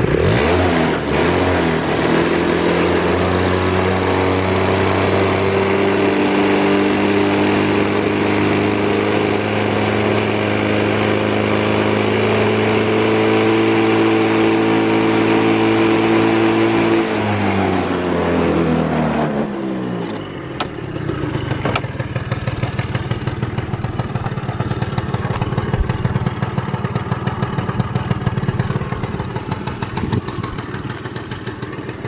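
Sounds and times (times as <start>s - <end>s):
motorcycle engine idling: 20.0s - 32.0s.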